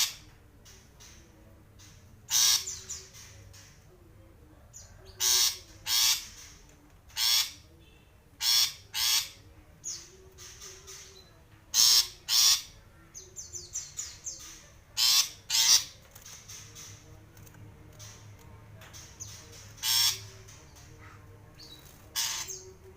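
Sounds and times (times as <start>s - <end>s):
shrike chattering calls: 14.0s - 17.0s, 19.0s - 22.8s.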